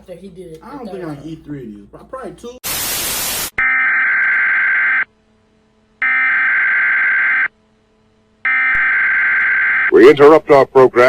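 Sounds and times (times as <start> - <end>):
buzzing alert data bursts: 6.0 - 7.5, 8.4 - 9.9.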